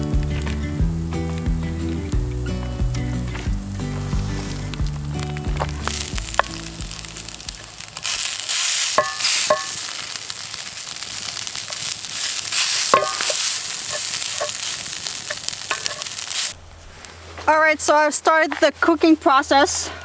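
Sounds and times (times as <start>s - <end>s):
onions sizzling in a pan: 0.0s - 16.6s
utensil stirring in a pan: 3.8s - 16.6s.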